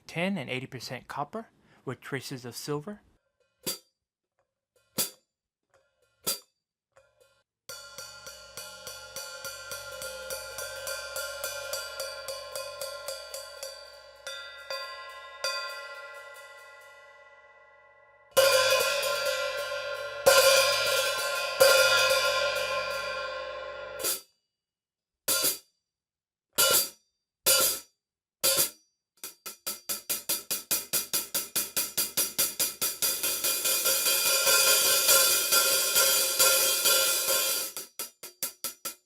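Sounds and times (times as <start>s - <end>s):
hi-hat struck with a stick: 7.7s - 16.6s, 18.4s - 23.3s, 28.5s - 39.0s.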